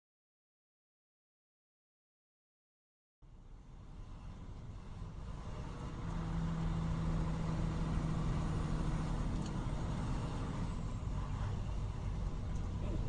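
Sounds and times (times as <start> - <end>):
road rumble: 3.2 - 13.0
vehicle engine hum: 3.2 - 13.0.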